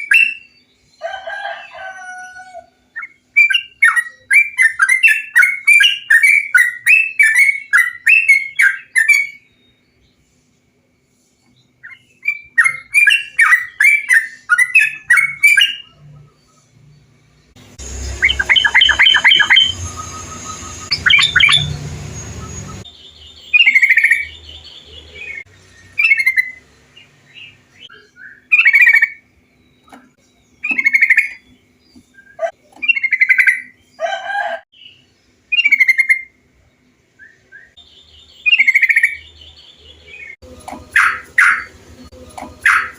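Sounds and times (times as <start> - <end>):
bird chattering: 17.8 - 22.9, 23.5 - 25.4, 28.0 - 29.2, 30.6 - 31.5, 32.3 - 33.8, 35.6 - 36.3, 38.4 - 39.3, 40.8 - 41.8, 42.4 - 42.9
bird whistled phrases: 18.1 - 22.9.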